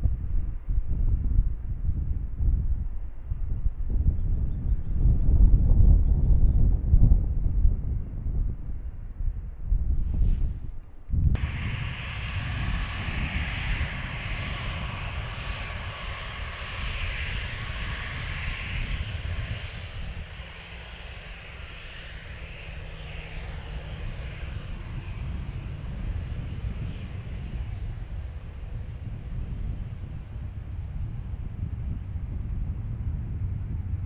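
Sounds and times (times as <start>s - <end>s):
wind on microphone: 0.0s - 34.0s
jet engines roaring: 11.4s - 33.8s.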